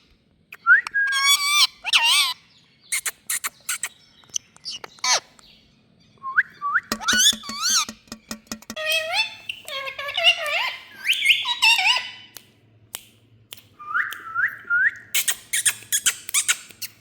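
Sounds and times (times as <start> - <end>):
parakeet squawks: 1.2 - 4.0
sharp clicks: 6.9 - 8.8.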